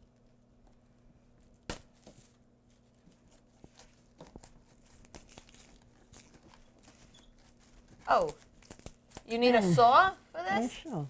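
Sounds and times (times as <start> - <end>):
cauliflower crunching: 2.7 - 9.3.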